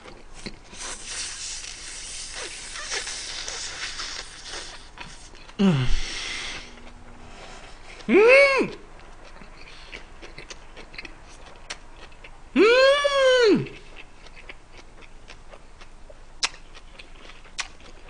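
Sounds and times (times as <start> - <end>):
person saying mmm: 1.1 - 6.8, 8.0 - 8.9, 12.6 - 13.9
person humming falling pitch: 5.6 - 6.2, 8.1 - 8.8, 12.6 - 13.8.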